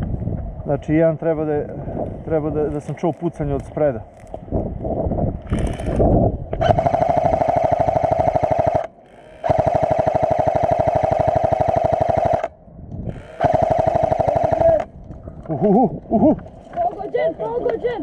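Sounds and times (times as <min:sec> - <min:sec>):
motor whine: 0:05.5 - 0:15.0
airsoft gun firing full auto: 0:06.6 - 0:12.5, 0:13.2 - 0:14.9.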